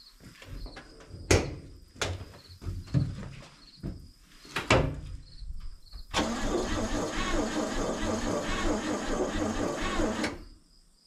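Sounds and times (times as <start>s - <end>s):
sharp knocks and clunks: 0.6s - 4.0s.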